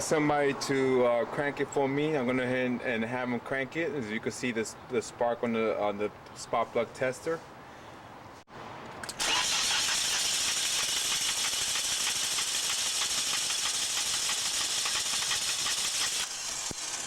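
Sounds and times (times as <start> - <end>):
car engine cranking: 8.8 - 17.0.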